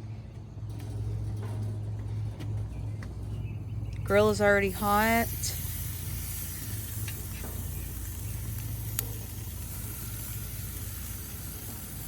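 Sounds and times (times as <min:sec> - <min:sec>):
low rumbling noise: 0:00.0 - 0:12.0
faint hiss: 0:04.7 - 0:12.0.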